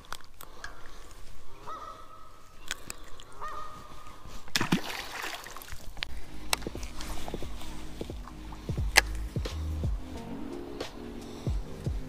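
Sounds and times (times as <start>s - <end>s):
drawn-out bird calls: 0.0s - 4.4s.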